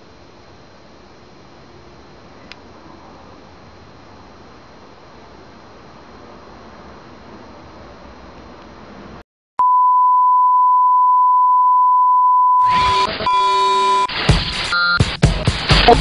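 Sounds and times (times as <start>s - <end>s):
faint hiss: 0.0s - 9.2s
loud electronic beep: 9.6s - 15.1s
music: 13.6s - 16.0s.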